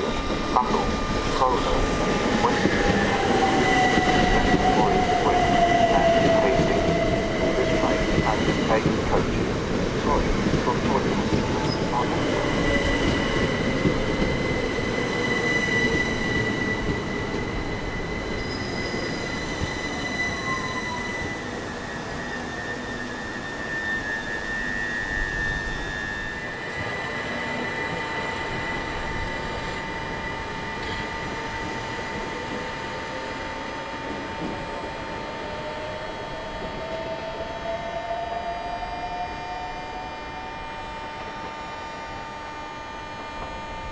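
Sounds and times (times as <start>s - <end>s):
electric train whine: 0.0s - 43.9s
train rumble: 0.0s - 43.9s
wheels and brakes squealing: 11.2s - 13.7s, 17.9s - 27.0s.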